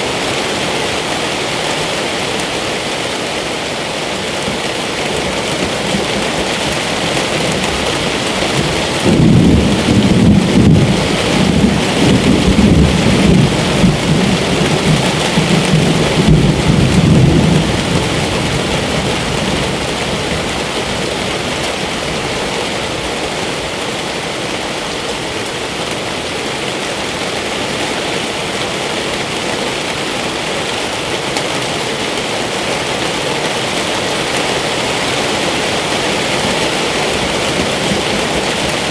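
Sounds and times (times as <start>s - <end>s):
steady rain falling: 0.0s - 38.9s
low rumble of thunder: 7.2s - 21.0s.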